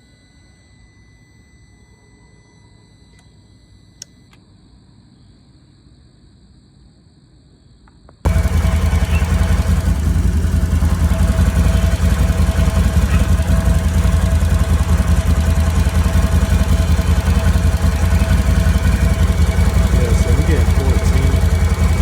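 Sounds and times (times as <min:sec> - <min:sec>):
engine idling: 0:08.3 - 0:22.0.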